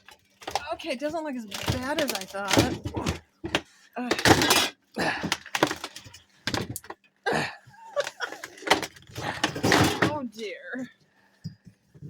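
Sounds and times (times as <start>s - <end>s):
ice cracking and scraping: 0.0s - 2.9s.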